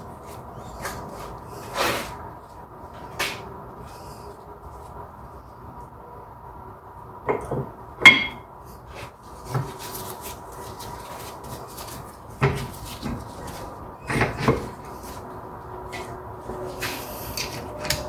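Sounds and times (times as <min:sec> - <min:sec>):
metal tools knocking and clanking: 0:07.3 - 0:08.5.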